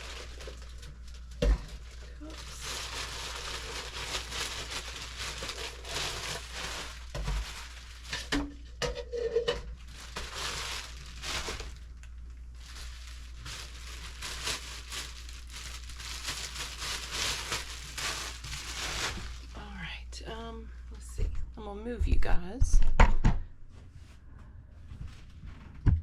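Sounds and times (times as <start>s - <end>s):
plastic wrapping crinkling: 0.0s - 19.9s.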